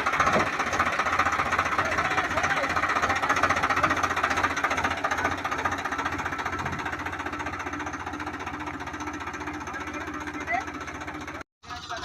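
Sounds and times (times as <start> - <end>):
tractor diesel engine clattering: 0.0 - 12.0.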